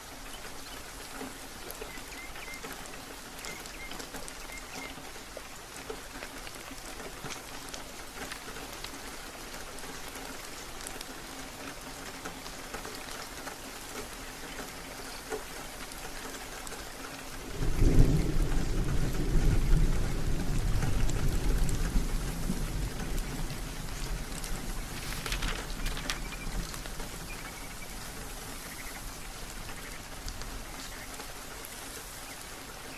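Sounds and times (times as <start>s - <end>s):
rain hissing: 0.0s - 32.9s
thunder rumble: 17.4s - 31.5s.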